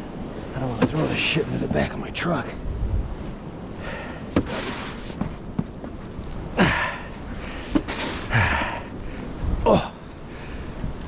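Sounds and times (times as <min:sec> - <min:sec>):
shovel scraping snow: 0:04.4 - 0:05.4, 0:07.6 - 0:08.3
man grunting: 0:06.6 - 0:07.1, 0:09.6 - 0:10.0.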